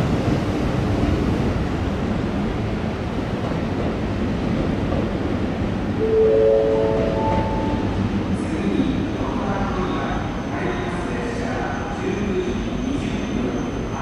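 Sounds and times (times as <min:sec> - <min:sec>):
chord of steady tones: 0:06.0 - 0:08.1.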